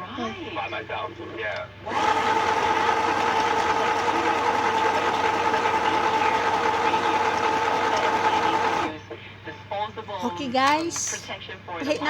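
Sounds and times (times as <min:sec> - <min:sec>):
sewing machine running: 0:01.9 - 0:08.9.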